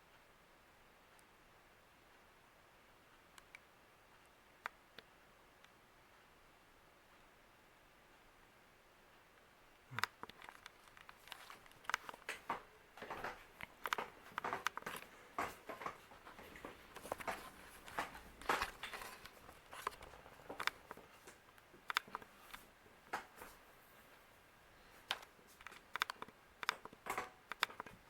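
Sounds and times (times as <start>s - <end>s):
crackling and rustling clicks: 9.1s - 24.4s, 25.0s - 28.0s.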